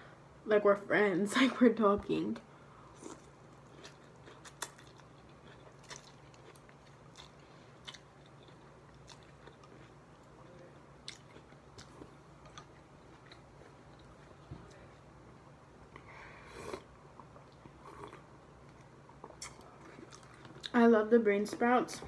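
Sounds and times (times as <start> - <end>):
faint low hum: 0.0 - 22.0
person chewing food: 2.9 - 15.0, 15.9 - 20.7.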